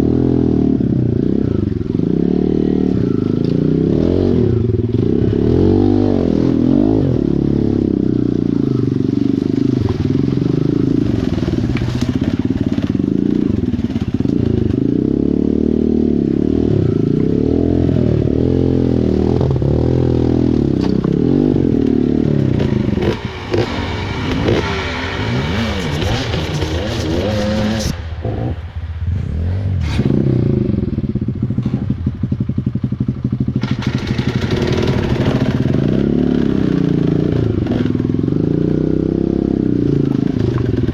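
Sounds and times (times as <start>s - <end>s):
dirt bike engine revving: 10.5s - 32.2s, 33.0s - 40.9s.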